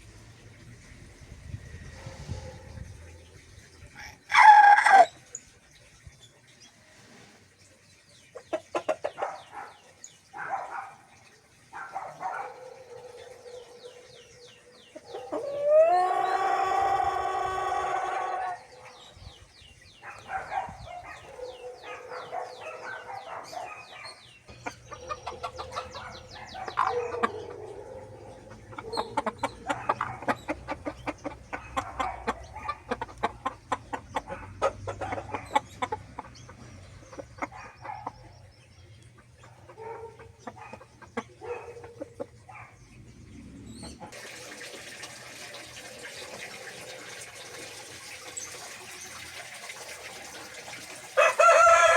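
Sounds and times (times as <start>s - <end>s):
birds clucking: 0.0s - 6.3s, 7.0s - 51.9s
running water: 0.0s - 38.2s, 44.0s - 51.9s
birds chirping: 0.0s - 44.2s.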